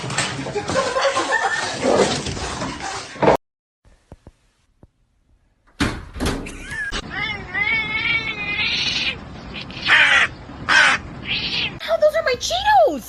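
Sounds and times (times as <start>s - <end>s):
cat meowing: 7.0s - 11.8s.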